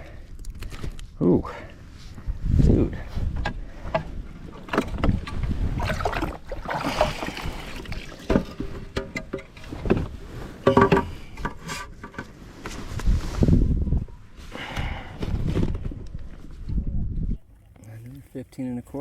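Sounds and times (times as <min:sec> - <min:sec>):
knocks and clatter on boat: 0:03.4 - 0:06.4, 0:08.2 - 0:12.3
water splashing: 0:05.7 - 0:08.5.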